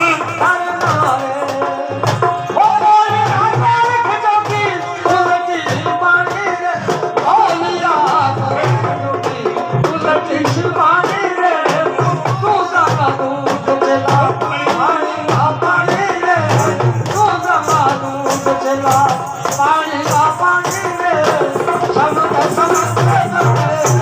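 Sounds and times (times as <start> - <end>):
hand drum rhythm: 0.0 - 24.0.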